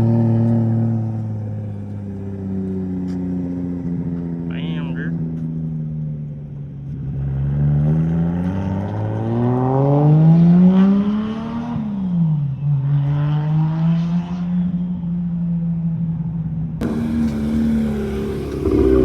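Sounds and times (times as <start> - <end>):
car engine revving: 16.8 - 19.0.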